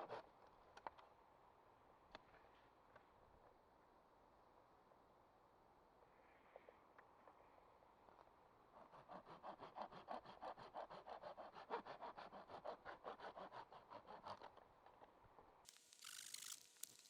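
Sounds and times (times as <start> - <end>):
hand saw cutting wood: 8.8 - 14.5.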